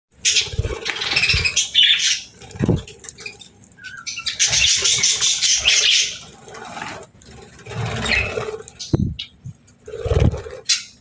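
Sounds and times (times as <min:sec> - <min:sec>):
budgies flapping wings: 0:00.2 - 0:09.3, 0:09.9 - 0:10.9
low thumps: 0:08.9 - 0:09.6.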